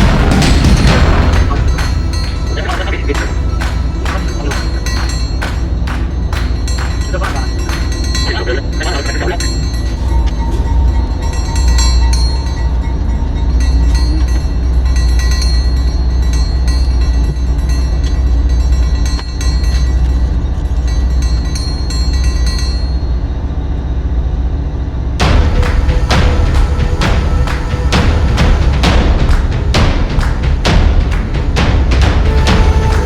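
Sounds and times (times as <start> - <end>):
train clicks and rattles: 0.0 - 10.0
train rumbling: 0.0 - 16.8, 25.0 - 33.0.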